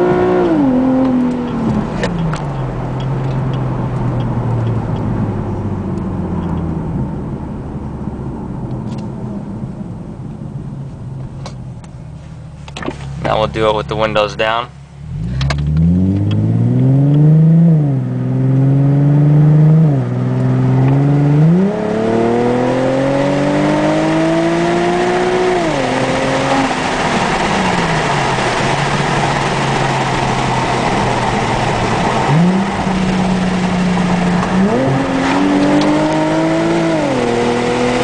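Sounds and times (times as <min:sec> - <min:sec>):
car engine accelerating through gears: 0:00.0 - 0:13.8, 0:15.0 - 0:38.0
wind and road noise: 0:00.0 - 0:38.0.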